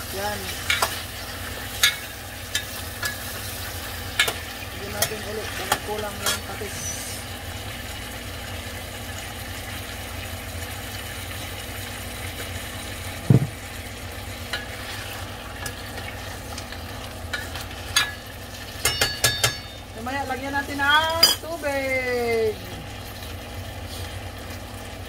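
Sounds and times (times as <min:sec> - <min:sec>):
food sizzling in a pot: 0:00.0 - 0:25.0
dull knock: 0:13.3 - 0:13.6
metal spoon stirring in pot: 0:18.8 - 0:19.9.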